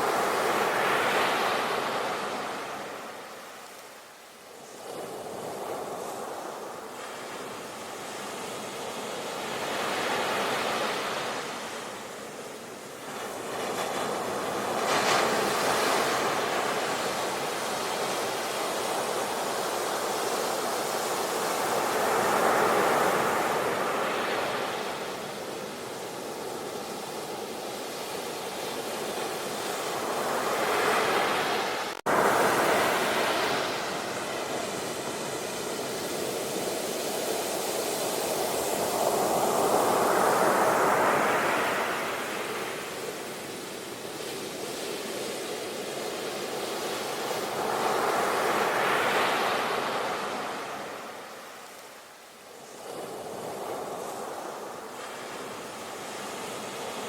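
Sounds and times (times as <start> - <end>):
ocean waves breaking: 28.8 - 43.2.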